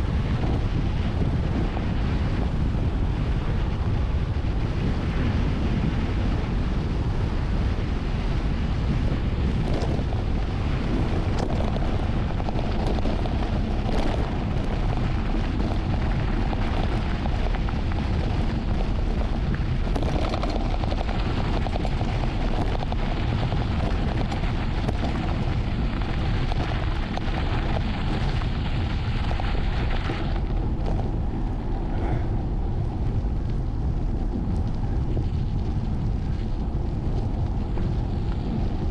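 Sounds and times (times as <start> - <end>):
wind buffeting microphone: 0.0 - 38.9
bike knocks and rattles: 8.8 - 32.3.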